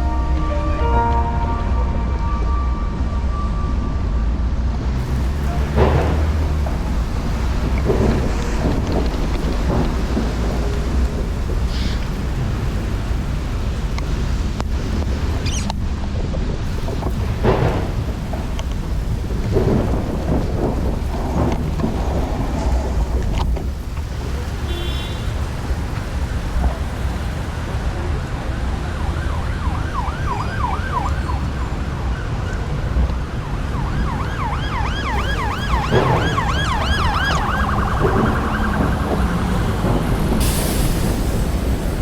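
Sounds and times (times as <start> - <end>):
emergency siren yelping: 0.0 - 4.4, 28.5 - 40.4
steady low rumble: 0.0 - 24.6.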